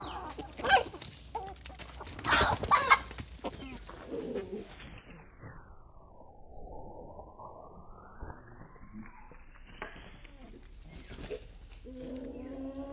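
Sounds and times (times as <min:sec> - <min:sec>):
chickens squawking and clucking: 0:00.0 - 0:05.0, 0:10.9 - 0:12.9.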